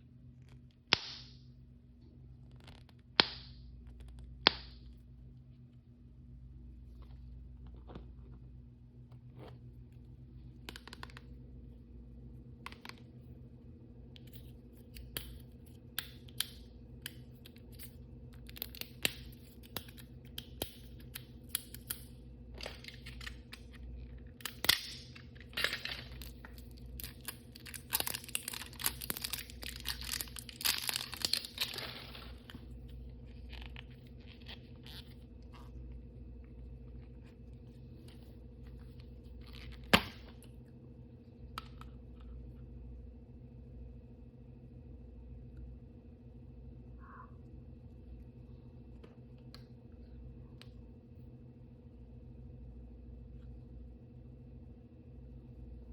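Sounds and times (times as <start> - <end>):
plastic packaging crinkling: 25.3 - 34.8.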